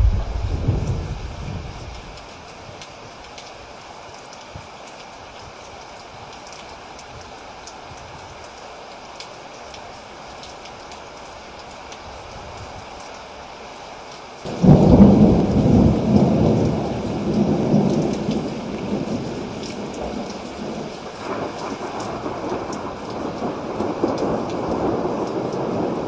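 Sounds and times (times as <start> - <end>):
thunderclap and rumble: 0.0 - 2.4, 14.5 - 26.0
steady rain: 0.0 - 26.0.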